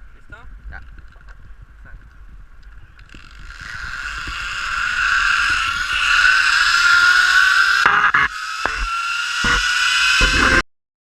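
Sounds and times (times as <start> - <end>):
zipline wheels whining on cable: 2.7 - 10.6
sharp knocks: 7.8 - 10.6.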